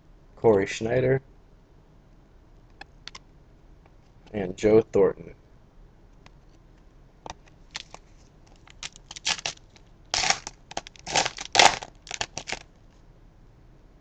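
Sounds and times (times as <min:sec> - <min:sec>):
foil wrapper crinkling: 0:07.7 - 0:12.7.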